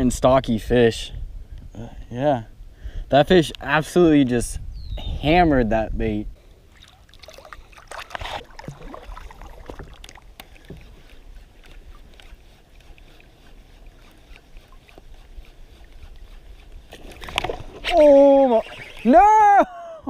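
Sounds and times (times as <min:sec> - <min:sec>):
faint water sounds: 0:06.0 - 0:20.0.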